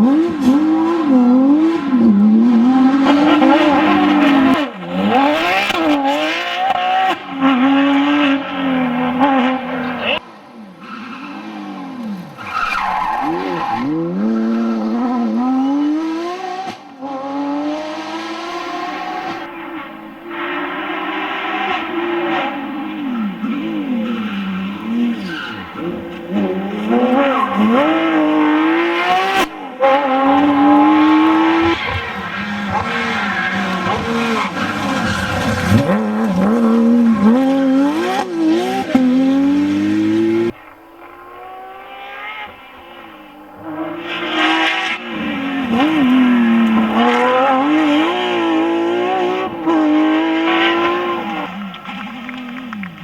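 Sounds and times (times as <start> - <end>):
car engine revving at full load: 13.1 - 53.0.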